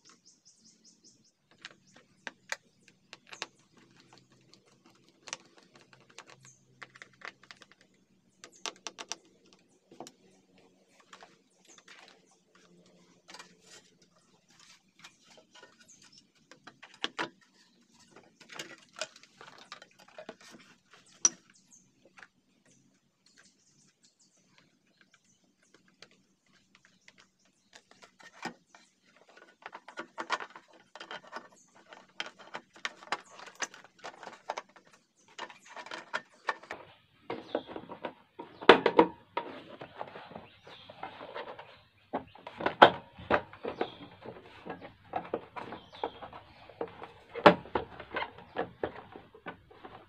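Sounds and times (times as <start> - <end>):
clicks and taps of handled parts: 1.5 - 10.2.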